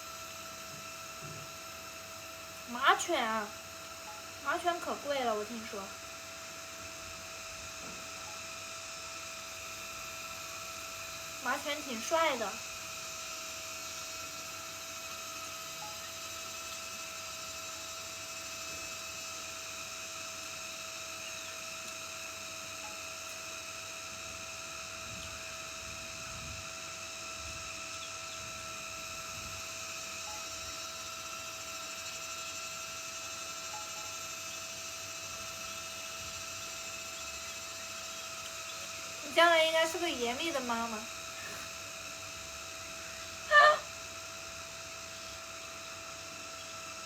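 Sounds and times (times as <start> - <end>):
constant high whine: 0.0 - 47.0
steady hum: 0.0 - 47.0.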